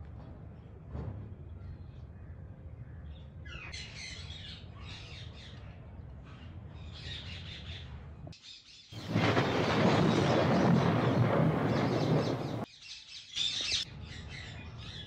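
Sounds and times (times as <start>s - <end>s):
birds chirping and squawking: 3.4s - 5.6s, 6.9s - 15.0s
loud rough rushing noise: 9.0s - 12.7s.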